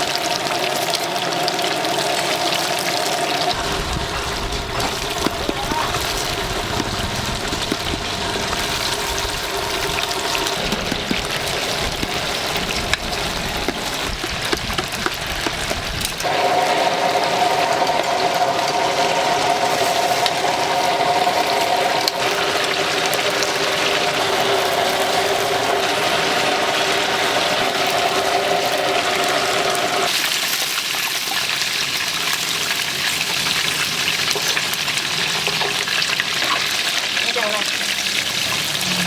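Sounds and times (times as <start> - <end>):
mechanical hum: 0.0 - 30.5
hot oil sizzling: 0.0 - 39.0.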